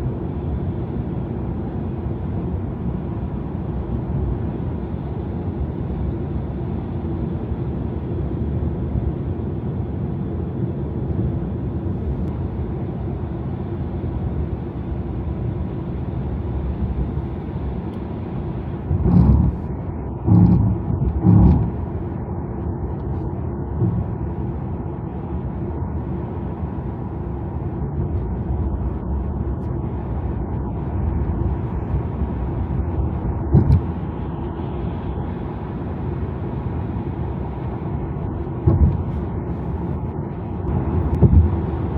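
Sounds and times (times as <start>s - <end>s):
tyre and road noise: 18.5s - 24.6s, 28.2s - 34.7s, 38.5s - 41.9s
brief thumps: 20.3s - 21.8s, 23.8s - 24.2s, 33.5s - 33.9s, 38.7s - 39.2s, 41.1s - 41.7s.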